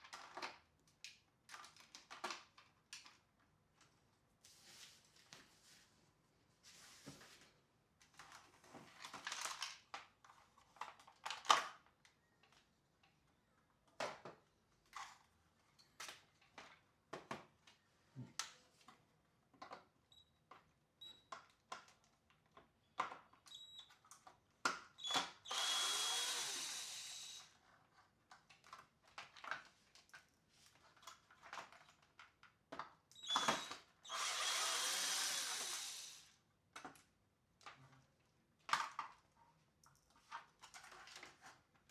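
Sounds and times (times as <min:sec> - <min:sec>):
plastic parts and screws clicking: 0:21.3 - 0:27.6, 0:30.9 - 0:37.0
electric screwdriver running: 0:25.4 - 0:27.5, 0:33.3 - 0:36.3.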